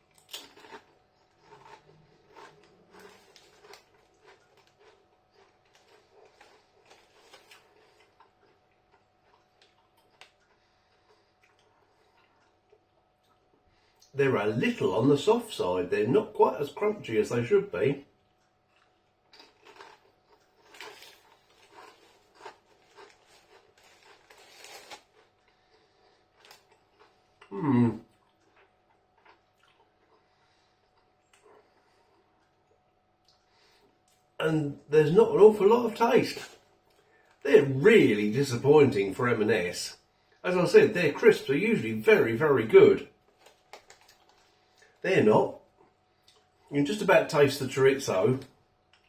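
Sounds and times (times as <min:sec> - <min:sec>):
person chewing tortilla chip: 0:00.0 - 0:14.1, 0:18.2 - 0:34.3, 0:43.2 - 0:45.0.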